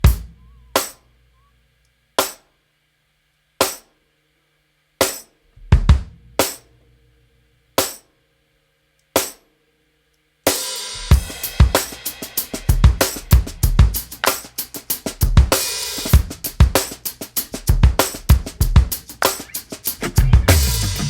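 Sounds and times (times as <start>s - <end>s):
cymbal wash: 10.5s - 14.7s, 19.0s - 21.0s
drum kit hits: 11.0s - 21.0s.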